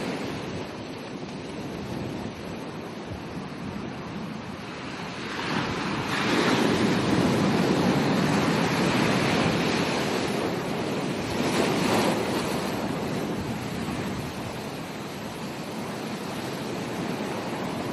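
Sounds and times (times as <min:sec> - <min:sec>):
ocean waves breaking on beach: 0:00.0 - 0:17.9.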